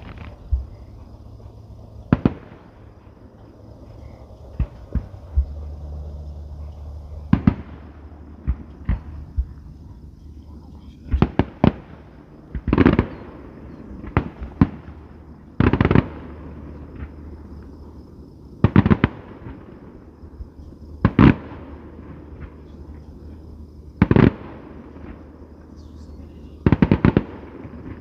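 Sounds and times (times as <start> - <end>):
fireworks bangs: 0.0 - 18.0, 18.6 - 23.3, 24.0 - 28.0.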